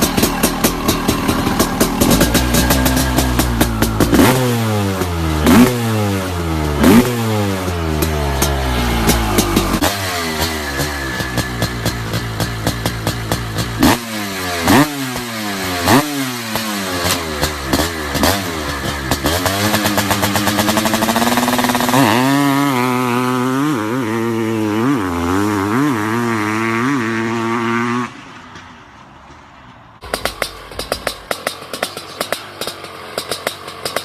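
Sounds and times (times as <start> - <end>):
exhaust crackling: 0.0 - 22.0, 30.0 - 34.0
motorcycle engine revving: 0.0 - 28.6, 30.0 - 34.0.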